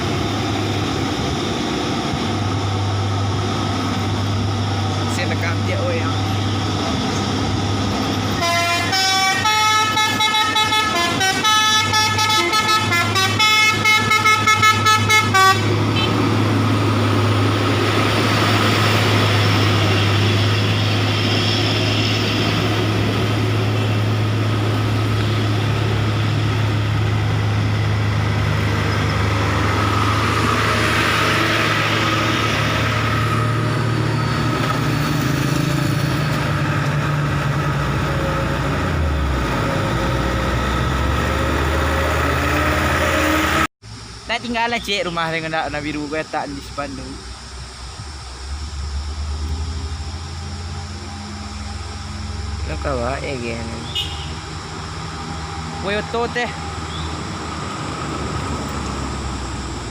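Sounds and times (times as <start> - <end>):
truck engine running: 0.0 - 59.9
multi-note horn toots: 8.3 - 16.3, 53.8 - 54.6.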